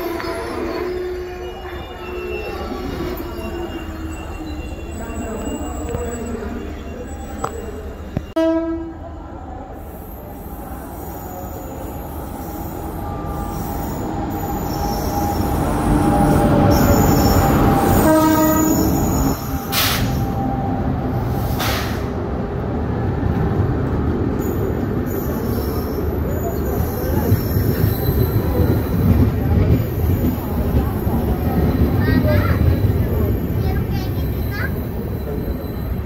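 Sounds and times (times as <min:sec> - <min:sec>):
train rumbling: 0:00.0 - 0:36.0
locomotive horn blasts: 0:08.4 - 0:08.9, 0:17.9 - 0:18.9.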